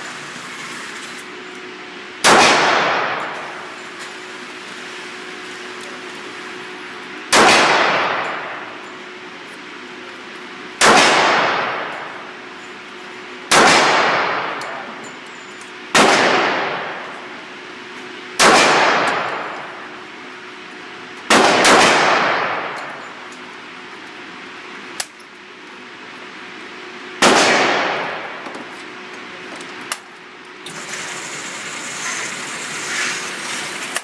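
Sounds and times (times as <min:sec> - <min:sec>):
gunshots with echo: 0:02.2 - 0:03.7, 0:07.3 - 0:08.6, 0:10.8 - 0:12.1, 0:13.5 - 0:14.8, 0:16.0 - 0:17.0, 0:18.4 - 0:19.6, 0:21.3 - 0:23.0.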